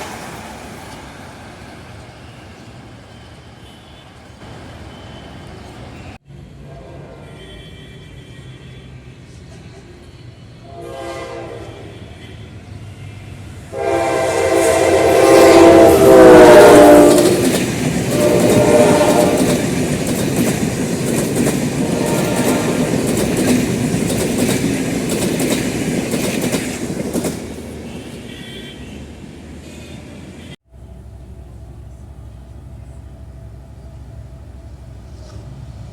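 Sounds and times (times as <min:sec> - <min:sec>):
locomotive horn blast: 0:06.5 - 0:08.4, 0:10.6 - 0:12.6, 0:13.7 - 0:19.7, 0:21.8 - 0:23.0
train wheel clatter: 0:15.9 - 0:28.0.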